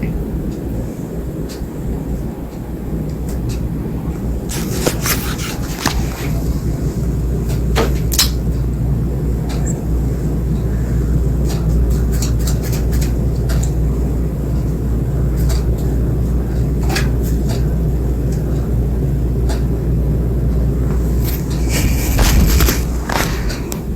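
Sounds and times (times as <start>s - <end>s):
ceiling fan rumbling: 0.0s - 23.9s
fan clicking and ticking: 0.0s - 23.9s.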